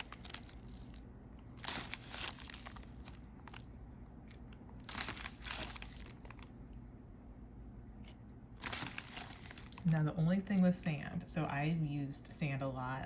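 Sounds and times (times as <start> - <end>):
plastic bag crinkling: 0.0 - 6.6, 8.6 - 10.1.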